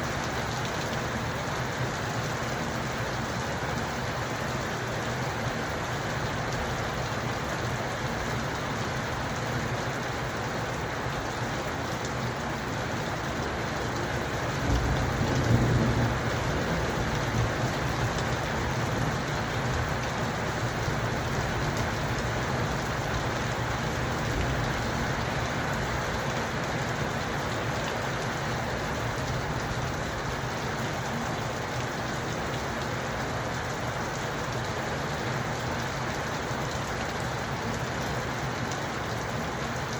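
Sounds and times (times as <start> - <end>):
steady rain falling: 0.0 - 39.9
low rumble of thunder: 14.5 - 20.0.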